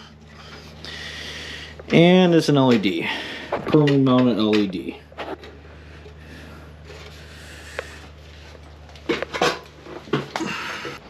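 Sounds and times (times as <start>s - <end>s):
steady low hum: 0.0s - 11.0s
plastic and metal parts clattering: 8.6s - 10.5s.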